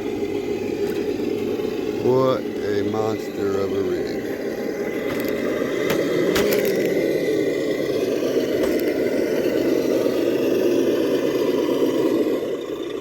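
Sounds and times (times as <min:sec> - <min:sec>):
rc car drivetrain hum: 0:00.0 - 0:13.0
tyres cracking on rocks: 0:05.0 - 0:07.0.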